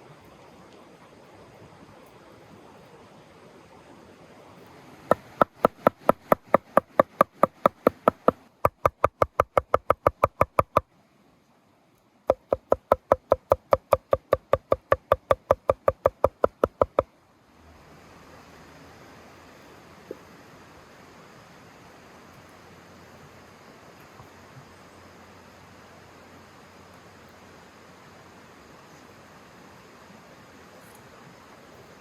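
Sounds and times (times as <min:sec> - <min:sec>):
rapid even knocking: 0:05.1 - 0:10.8, 0:12.3 - 0:17.1.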